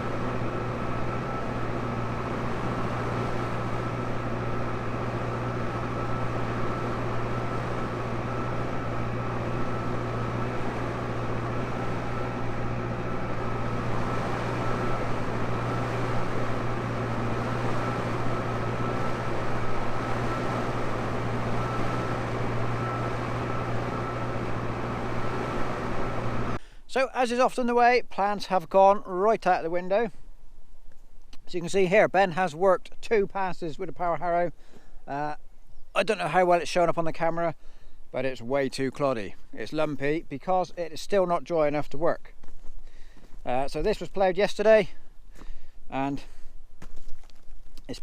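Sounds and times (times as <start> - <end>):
tractor engine running: 0.0 - 27.6
thin steady whine: 0.0 - 27.8.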